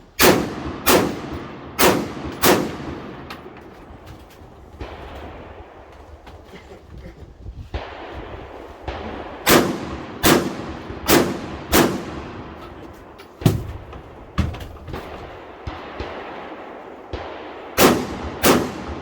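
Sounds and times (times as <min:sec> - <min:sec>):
rifle shots with echo: 0:00.2 - 0:06.2, 0:07.8 - 0:19.0
faint bangs: 0:07.6 - 0:19.0.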